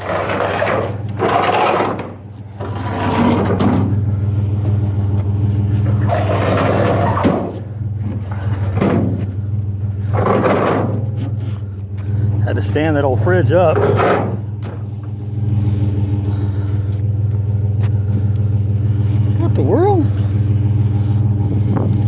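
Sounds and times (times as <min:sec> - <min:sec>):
fridge scraping and shuffling: 0:00.0 - 0:16.8
vehicle engine idling: 0:00.0 - 0:22.0.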